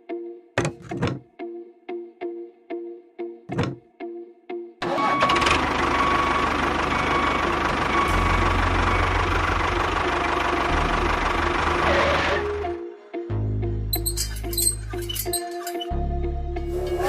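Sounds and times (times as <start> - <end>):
engine running steadily: 5.1 - 12.8.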